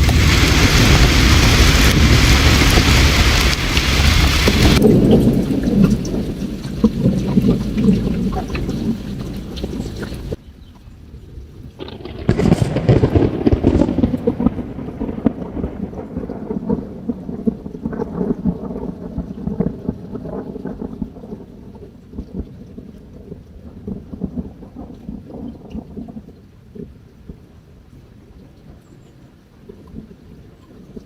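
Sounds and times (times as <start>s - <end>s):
campfire crackling: 0.0s - 10.4s
loud rolling rumble: 0.0s - 10.4s
low steady water noise: 0.0s - 11.9s, 12.8s - 31.0s.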